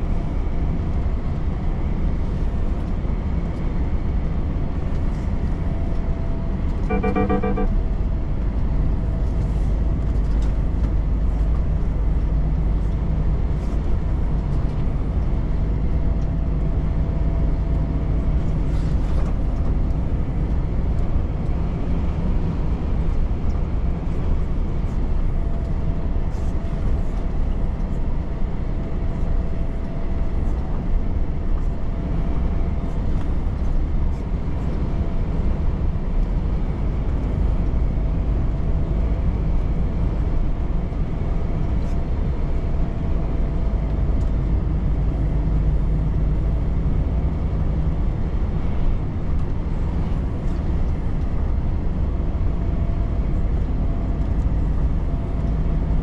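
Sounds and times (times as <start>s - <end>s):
road and tyre noise: 0.0s - 56.0s
truck engine drone: 0.0s - 56.0s
faint steady hum: 6.9s - 7.8s.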